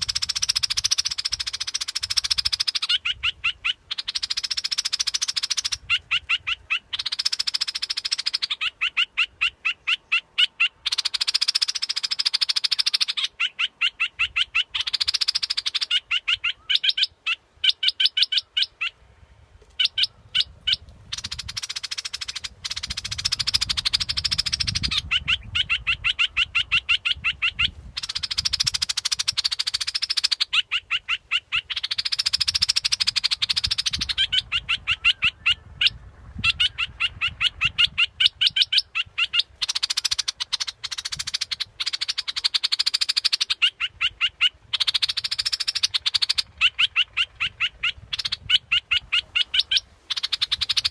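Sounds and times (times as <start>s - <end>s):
bulbul call: 0.0s - 17.1s, 36.6s - 50.9s.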